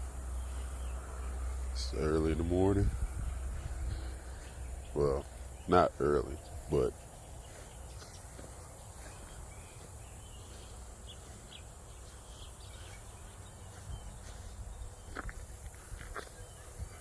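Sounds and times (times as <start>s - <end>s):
low rumble: 2.8s - 5.6s.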